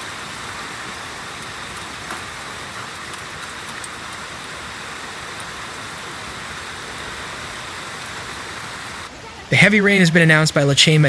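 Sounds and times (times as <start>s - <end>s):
hailstones ticking: 0.0s - 9.1s
heavy rain and hail hiss: 0.0s - 11.0s.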